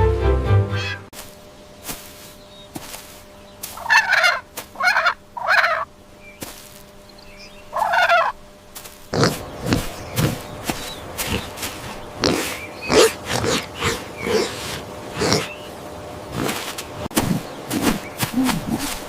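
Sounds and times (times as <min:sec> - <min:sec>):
turkey gobbling: 0:03.8 - 0:05.9, 0:07.7 - 0:08.4.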